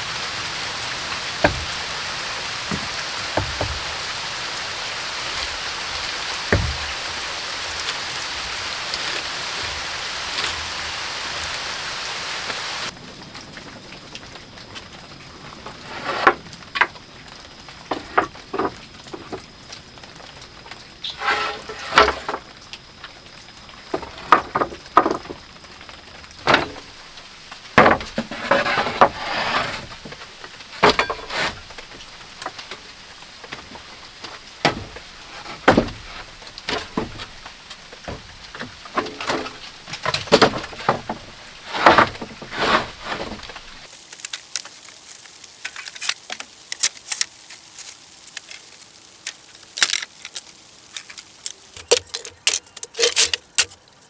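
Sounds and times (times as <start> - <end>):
objects knocking and clattering: 1.2 - 4.4, 5.3 - 7.3, 17.9 - 19.5, 21.2 - 22.5, 26.4 - 27.0, 27.6 - 44.7, 48.3 - 53.9.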